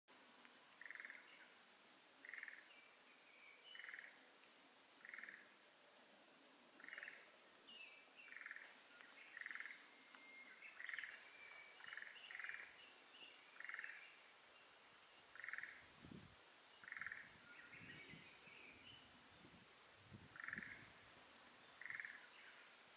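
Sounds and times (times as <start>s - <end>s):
frog pulsed calls: 0.8s - 1.3s, 2.2s - 2.7s, 3.7s - 4.2s, 5.0s - 5.5s, 6.8s - 7.3s, 8.3s - 12.8s, 13.6s - 14.1s, 15.3s - 15.8s, 16.8s - 17.8s, 20.3s - 20.9s, 21.8s - 22.6s.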